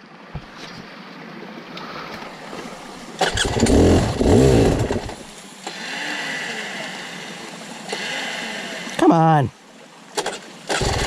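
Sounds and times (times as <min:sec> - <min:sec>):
dirt bike engine revving: 0:03.2 - 0:07.2, 0:07.9 - 0:08.8, 0:10.2 - 0:11.0.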